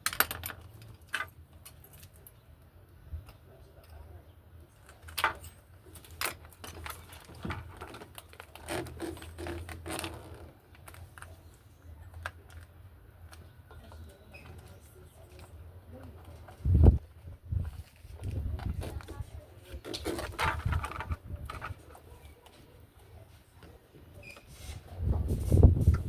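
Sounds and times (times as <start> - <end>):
tools clicking and clinking: 0.0 - 2.4.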